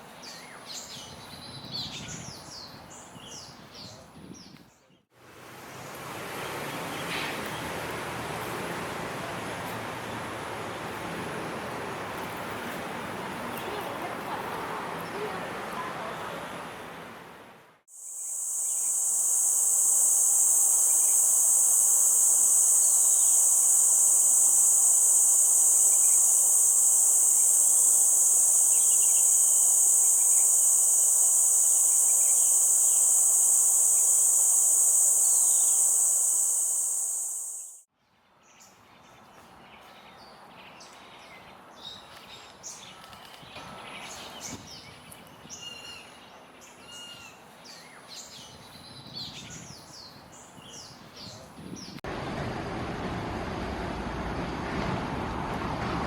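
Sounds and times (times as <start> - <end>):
high-pitched insect drone: 17.9 - 37.8
bird chirps: 27.2 - 37.8.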